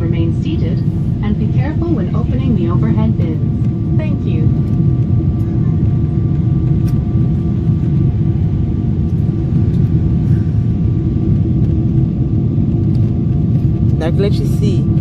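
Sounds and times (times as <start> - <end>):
airplane cabin rumble: 0.0 - 15.0.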